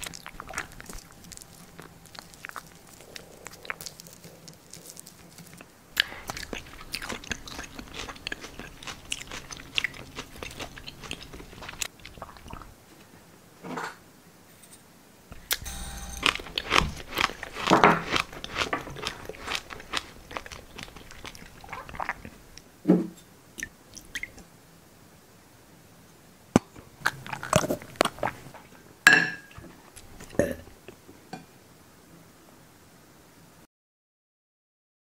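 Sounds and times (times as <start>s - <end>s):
loud crunching and chewing: 0.0s - 12.8s, 15.3s - 22.6s, 26.6s - 28.6s
sharp crunches and clicks: 15.3s - 22.3s, 26.6s - 28.5s.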